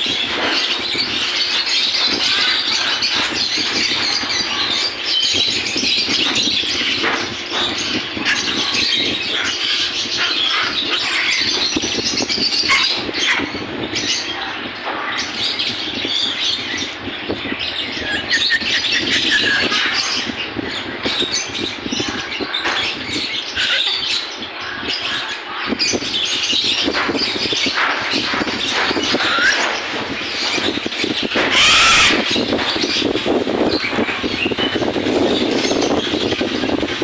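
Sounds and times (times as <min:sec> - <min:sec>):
caged birds chirping and squawking: 0:00.0 - 0:37.0
loud harsh bird screech: 0:29.1 - 0:29.7, 0:31.3 - 0:33.1.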